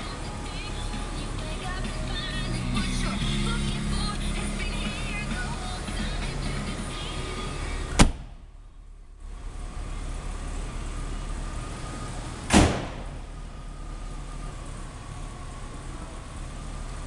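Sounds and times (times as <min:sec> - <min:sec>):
car engine idling: 0:00.0 - 0:17.0
sharp loud thump: 0:08.0 - 0:08.4, 0:12.5 - 0:13.2.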